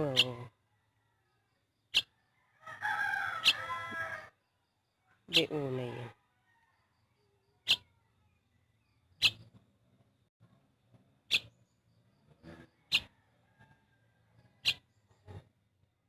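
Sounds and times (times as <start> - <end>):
bird high chirps: 1.9 - 2.1, 3.4 - 3.8, 7.6 - 8.0, 9.0 - 9.5, 11.3 - 11.6, 14.6 - 14.9
soft bird calls: 7.6 - 8.0, 9.0 - 9.6, 11.3 - 11.6, 14.6 - 15.4.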